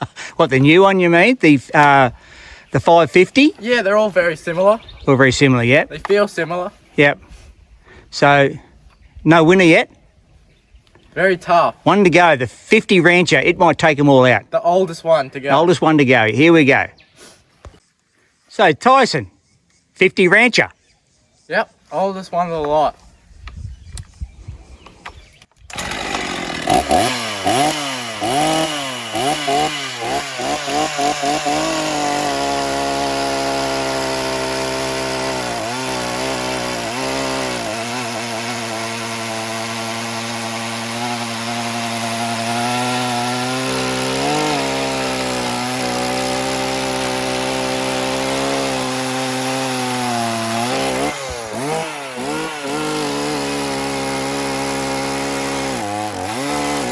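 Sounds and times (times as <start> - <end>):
chainsaw cutting wood: 1.7 - 2.1, 25.0 - 56.9.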